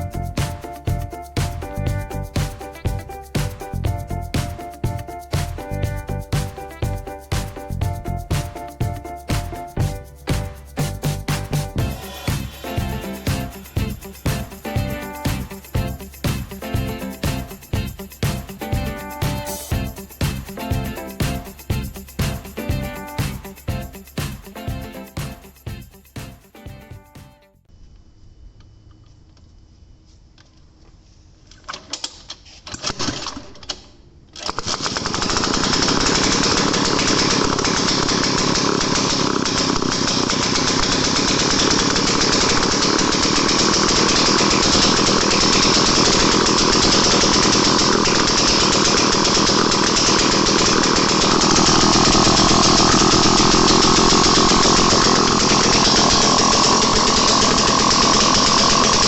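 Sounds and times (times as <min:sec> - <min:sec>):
two-stroke engine sputtering and running: 0:10.8 - 0:26.4, 0:34.7 - 0:59.0.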